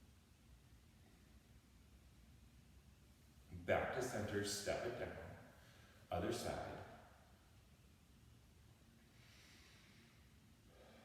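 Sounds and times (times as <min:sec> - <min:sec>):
faint breath-like hiss: 0:05.5 - 0:06.8, 0:09.0 - 0:11.0.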